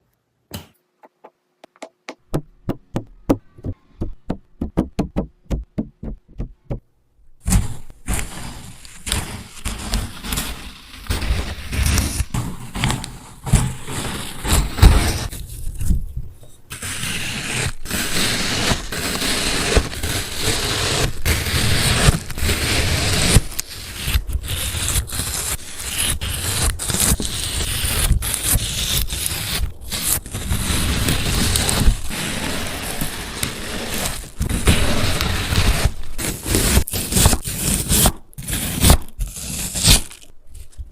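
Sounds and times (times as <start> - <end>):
sharp taps: 0.5 - 6.8.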